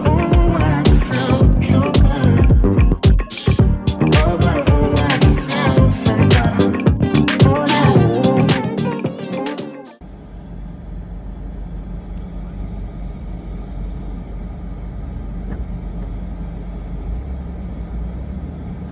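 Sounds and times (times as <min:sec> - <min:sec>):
ventilation fan humming: 0:10.0 - 0:18.0.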